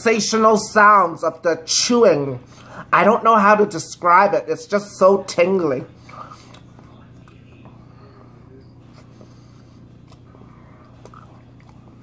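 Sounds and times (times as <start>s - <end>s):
steady low hum: 0.0s - 12.0s
faint chewing: 6.0s - 12.0s.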